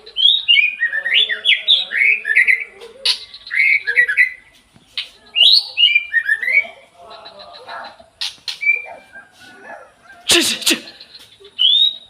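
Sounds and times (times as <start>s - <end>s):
bird singing whistled phrases: 5.4s - 6.8s, 10.8s - 12.0s.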